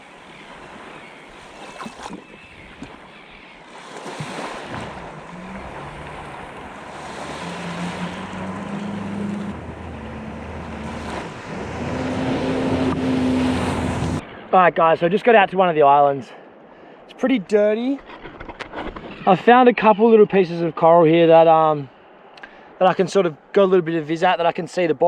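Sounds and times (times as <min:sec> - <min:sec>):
water splashing: 0:00.0 - 0:14.7
jet ski engine: 0:00.2 - 0:14.2.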